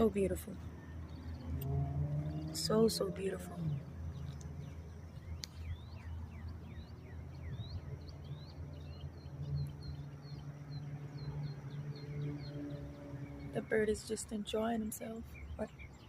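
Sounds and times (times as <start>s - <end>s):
songbird chirping: 0.0s - 16.0s.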